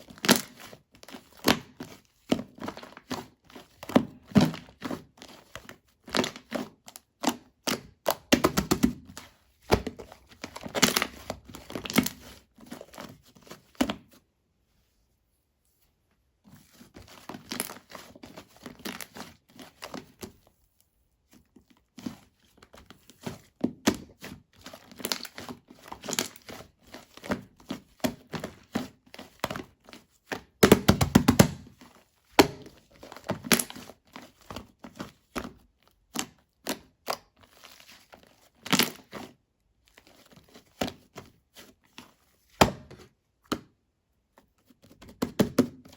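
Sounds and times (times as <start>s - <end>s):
slime squelching and crackling: 0.0s - 13.6s, 16.9s - 20.3s, 23.8s - 39.2s.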